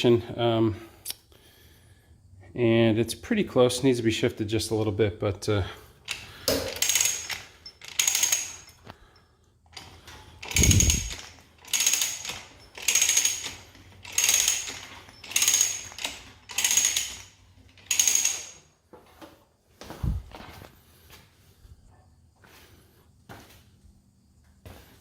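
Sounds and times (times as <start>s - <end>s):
ratchet clicking: 6.0s - 8.9s, 9.7s - 18.6s.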